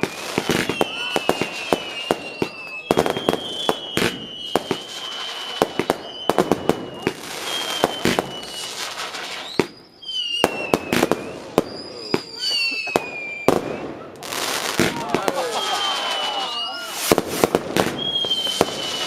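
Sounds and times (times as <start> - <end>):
fireworks bangs and crackles: 0.0 - 19.0
fireworks whistling: 0.0 - 19.0.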